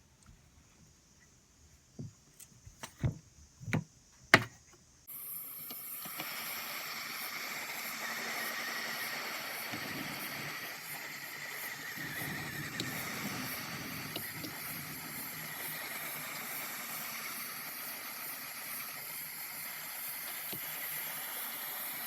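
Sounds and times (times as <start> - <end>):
steady hissing noise: 0.0 - 22.0
plastic clicks and taps: 2.0 - 4.7.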